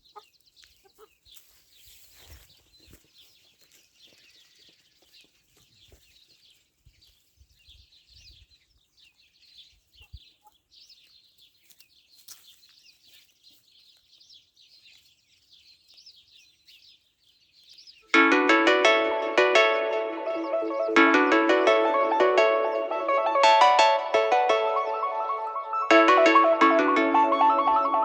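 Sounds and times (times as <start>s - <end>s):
chickens chirping: 0.0s - 28.0s
plucked string music: 18.1s - 28.0s.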